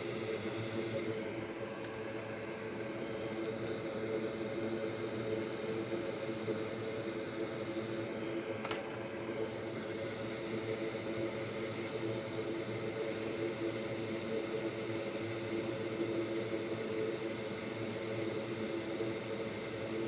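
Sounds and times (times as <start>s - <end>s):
electric fan whirring: 0.0s - 14.6s.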